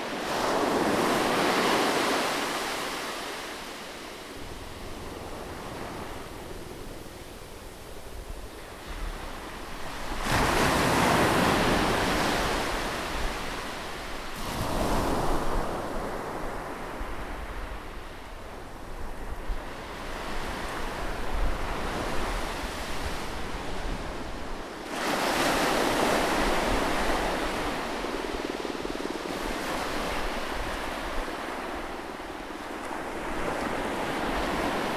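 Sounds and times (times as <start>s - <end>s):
sea waves breaking on shore: 0.0s - 16.8s.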